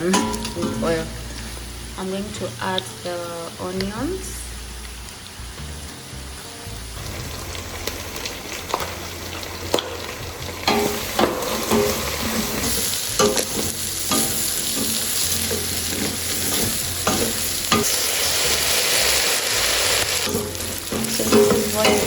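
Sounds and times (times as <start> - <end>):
meat and onions sizzling in oil: 0.0 - 22.0.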